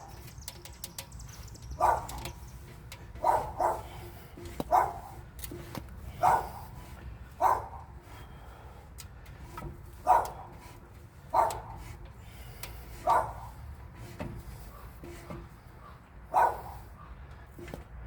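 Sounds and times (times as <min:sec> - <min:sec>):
dog barking: 0:01.7 - 0:02.3, 0:03.2 - 0:04.0, 0:04.7 - 0:05.2, 0:06.2 - 0:06.6, 0:07.4 - 0:07.8, 0:10.0 - 0:10.5, 0:11.3 - 0:11.8, 0:13.0 - 0:13.5, 0:16.3 - 0:16.8.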